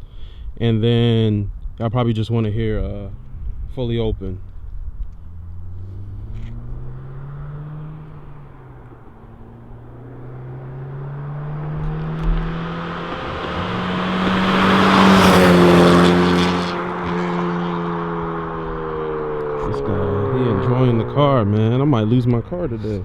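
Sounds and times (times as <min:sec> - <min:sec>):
car engine accelerating past: 0:05.0 - 0:23.0.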